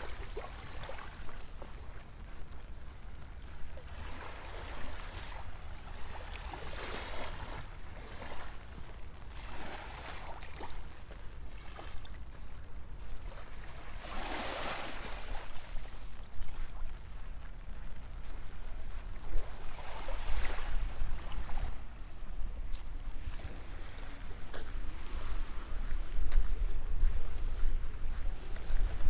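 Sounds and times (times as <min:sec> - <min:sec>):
small waves washing: 0:00.0 - 0:02.3, 0:03.6 - 0:12.5, 0:13.1 - 0:17.0, 0:18.8 - 0:21.7
wind rumble on microphone: 0:00.0 - 0:29.0.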